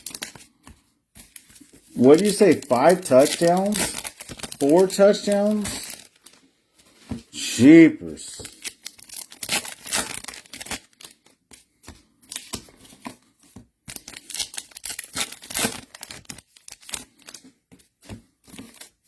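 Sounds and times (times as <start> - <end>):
wrappers tearing: 0.0 - 0.4, 1.6 - 6.4, 8.3 - 11.3, 13.9 - 17.4
wrappers crinkling: 0.0 - 0.6, 1.2 - 7.0, 8.3 - 12.6, 13.9 - 17.9.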